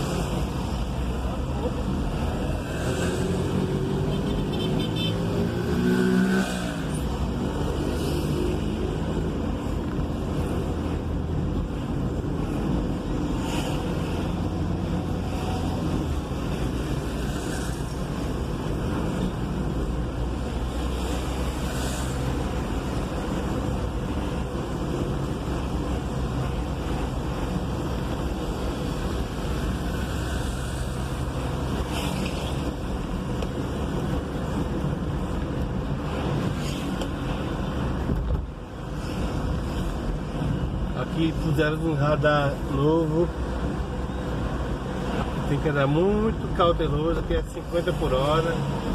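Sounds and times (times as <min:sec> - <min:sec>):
road and traffic noise: 0:00.0 - 0:48.9.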